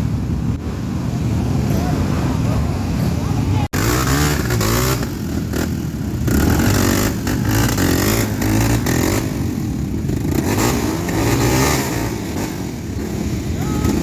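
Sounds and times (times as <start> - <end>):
dirt bike engine revving: 3.7 - 14.0.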